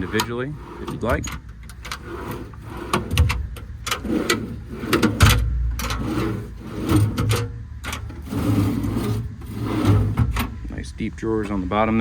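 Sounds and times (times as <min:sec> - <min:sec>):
steel drawers sliding open and shut: 0:00.0 - 0:10.7.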